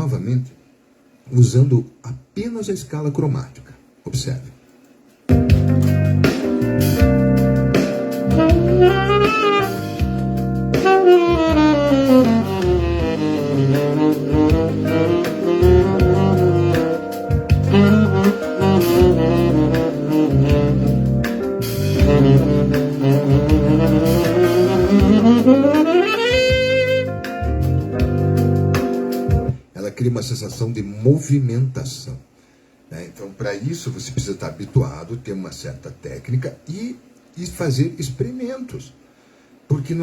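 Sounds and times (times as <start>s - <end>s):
saxophone playing chromatic runs: 7.9s - 29.5s.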